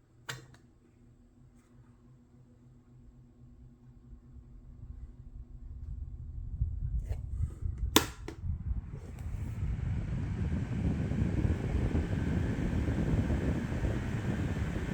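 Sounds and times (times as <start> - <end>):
fan running: 0.0 - 14.9
fan controls clicking: 7.8 - 8.4.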